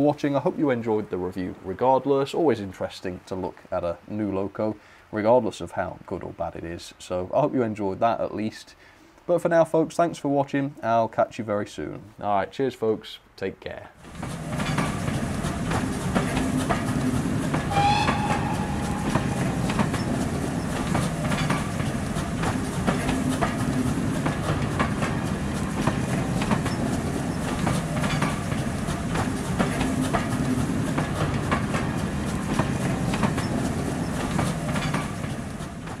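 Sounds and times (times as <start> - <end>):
train rumbling on rails: 14.0 - 36.0
wheels clacking over rail joints: 14.0 - 36.0
rising horn tone: 17.7 - 20.5.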